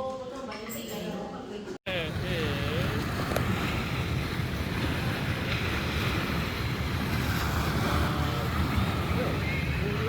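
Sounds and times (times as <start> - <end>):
surf washing on beach: 1.9 - 10.0
wind buffeting microphone: 1.9 - 10.0.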